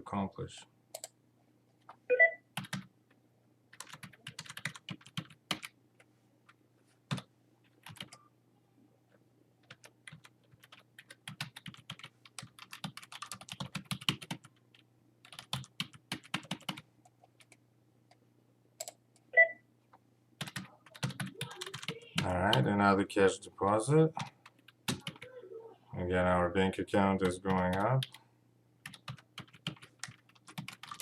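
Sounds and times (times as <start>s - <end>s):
typing on a keyboard: 2.6s - 2.9s, 3.8s - 5.7s, 7.1s - 8.2s, 9.6s - 16.8s, 20.4s - 22.6s, 24.2s - 25.3s, 28.8s - 31.0s.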